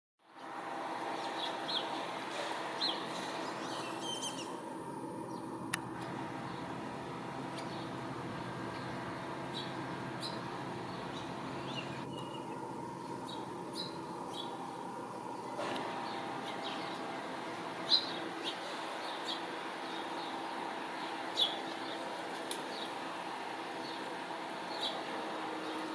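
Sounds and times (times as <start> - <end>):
steady background hum: 0.3 - 25.9
high bird chirps: 2.8 - 4.6, 11.0 - 14.6.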